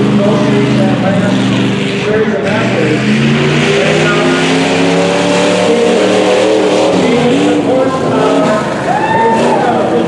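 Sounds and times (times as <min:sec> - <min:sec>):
truck engine revving: 0:00.0 - 0:10.0.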